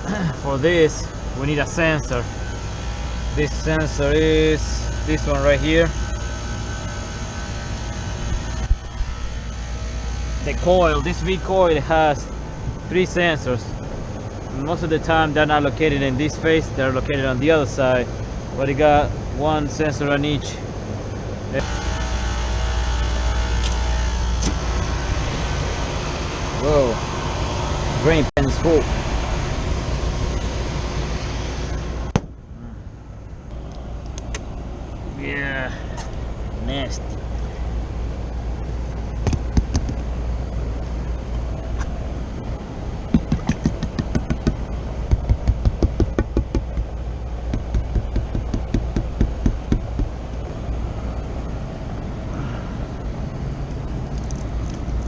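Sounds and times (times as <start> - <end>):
air conditioning unit running: 0.0 - 55.0
low hum of hvac equipment: 0.0 - 55.0
sharp click: 33.7 - 34.5
fast sharp knocks: 39.2 - 40.0, 43.1 - 50.2.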